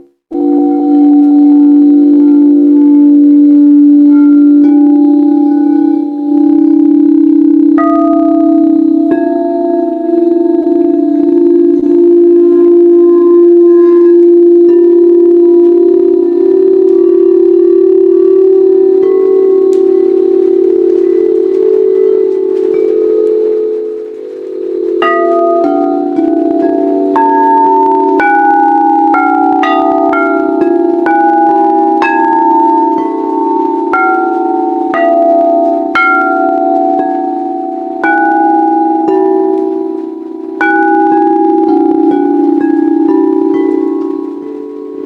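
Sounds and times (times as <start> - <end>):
singing bowl humming tone: 0.0 - 45.0
singing bowls struck ringing: 0.0 - 45.0.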